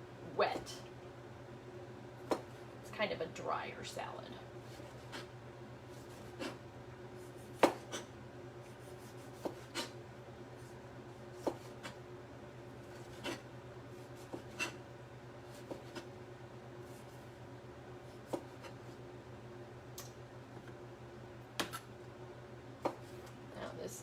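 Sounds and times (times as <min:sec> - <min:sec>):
steady low hum: 0:00.0 - 0:24.0
knife cutting tomato: 0:07.2 - 0:10.0, 0:12.8 - 0:14.8.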